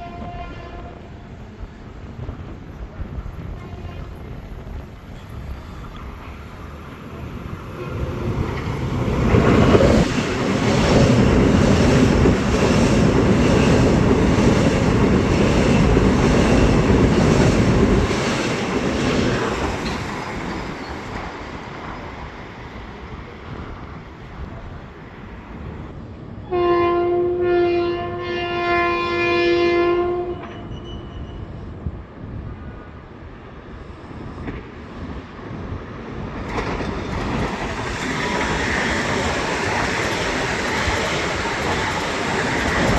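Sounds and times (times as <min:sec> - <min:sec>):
train horn chord: 0:00.0 - 0:01.2, 0:26.4 - 0:31.4
train wheels clattering: 0:07.9 - 0:22.3, 0:36.4 - 0:42.9.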